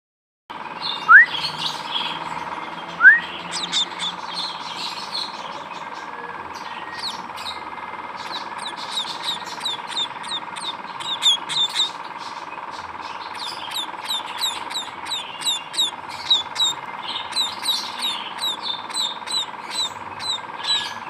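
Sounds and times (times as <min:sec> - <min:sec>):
young birds chirping: 0:00.8 - 0:21.0
loud rising whistles: 0:03.0 - 0:04.1.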